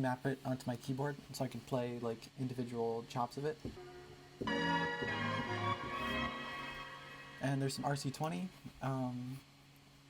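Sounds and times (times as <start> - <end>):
sampled chord from keyboard sampler: 3.8 - 7.9.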